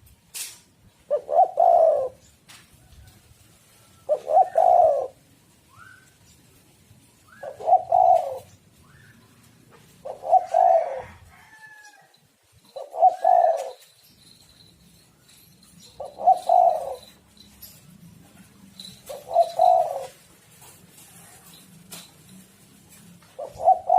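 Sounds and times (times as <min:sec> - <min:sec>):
dove cooing: 0:01.1 - 0:02.4, 0:04.0 - 0:06.2, 0:07.2 - 0:09.2, 0:09.8 - 0:11.8, 0:12.7 - 0:14.0, 0:15.8 - 0:17.3, 0:18.8 - 0:21.9, 0:22.8 - 0:23.9.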